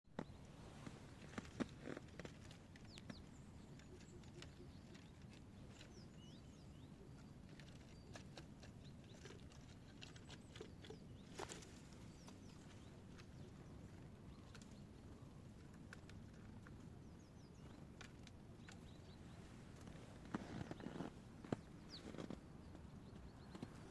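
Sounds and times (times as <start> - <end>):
squirrel paws tapping on wood: 0.2 - 23.9
squirrel chirps: 2.7 - 19.5.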